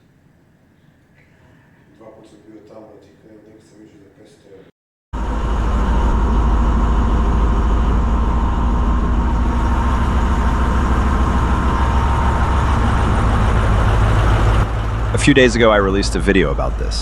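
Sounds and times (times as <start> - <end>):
diesel engine rumbling: 5.2 - 17.0
thin high whine: 5.2 - 17.0.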